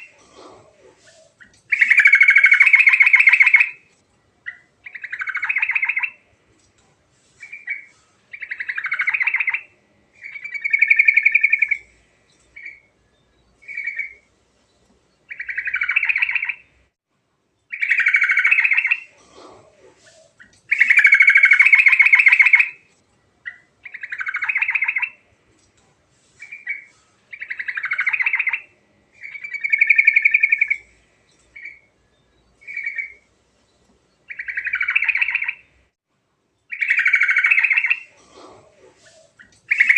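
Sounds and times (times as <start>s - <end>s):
bulbul singing: 0.0s - 3.8s, 4.4s - 6.3s, 7.4s - 14.3s, 15.2s - 16.8s, 20.0s - 22.8s, 23.4s - 25.3s, 26.4s - 33.3s, 34.2s - 35.8s, 36.7s - 39.9s.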